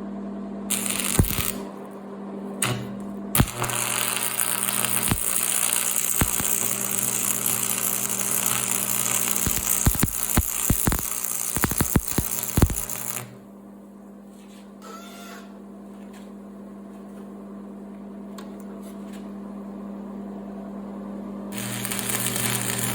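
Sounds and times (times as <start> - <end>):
welding arc crackling hiss: 0.7 - 1.9, 2.6 - 13.4, 21.6 - 22.9.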